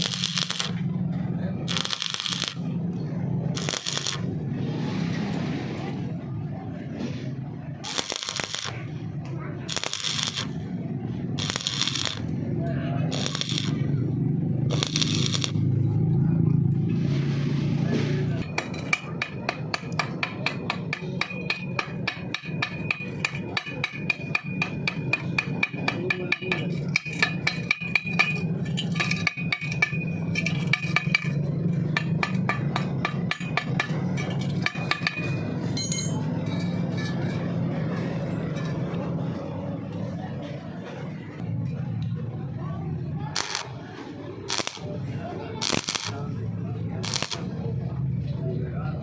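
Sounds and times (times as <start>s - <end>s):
hammer striking steel: 1.7s - 2.7s, 13.1s - 13.8s, 14.7s - 15.6s, 18.4s - 37.6s, 43.4s - 43.8s, 45.6s - 46.2s, 47.0s - 47.5s.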